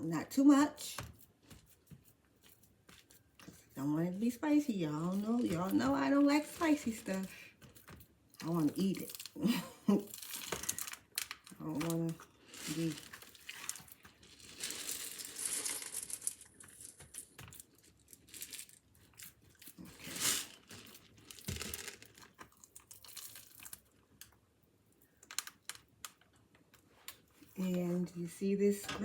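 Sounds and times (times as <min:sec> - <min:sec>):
crinkling and rustling: 0:00.9 - 0:24.4, 0:25.0 - 0:28.1.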